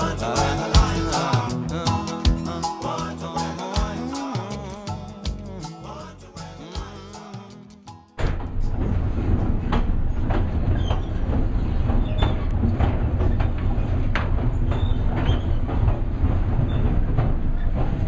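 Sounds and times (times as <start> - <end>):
train carriage rumble: 8.2 - 18.0
wheels clicking over rail joints: 8.8 - 18.0.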